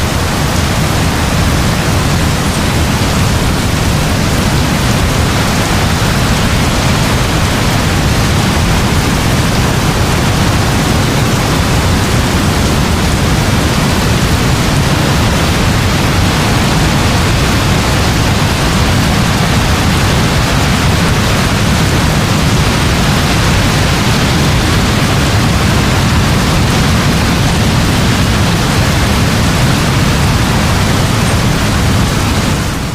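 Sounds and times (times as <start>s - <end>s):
heavy rain: 0.0s - 32.9s.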